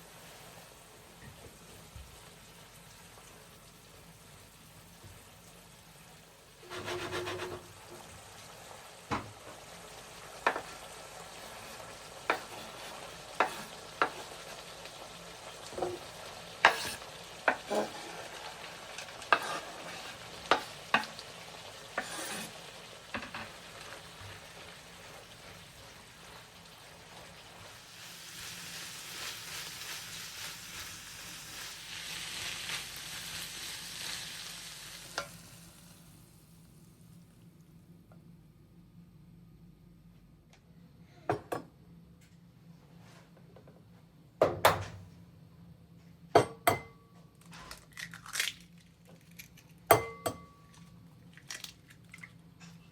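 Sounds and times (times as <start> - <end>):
food sizzling in frying pan: 0.0 - 37.4.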